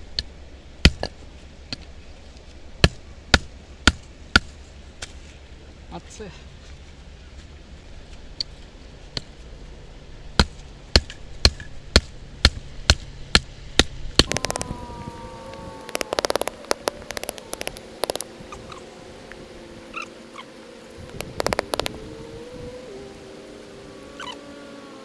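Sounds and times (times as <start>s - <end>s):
rapid clicking: 14.2s - 14.8s, 15.8s - 18.3s, 21.0s - 22.0s
faint steady tone: 14.2s - 25.0s.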